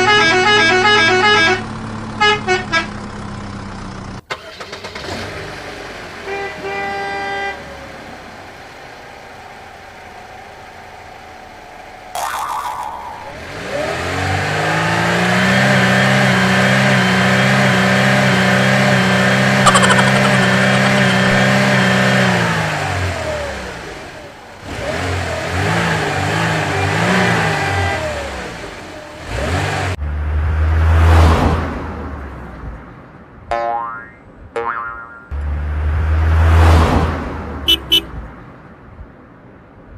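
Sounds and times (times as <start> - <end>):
engine revving and winding down: 12.3 - 31.5
wavering engine sound: 18.3 - 24.4
loud rising rush: 19.0 - 23.4.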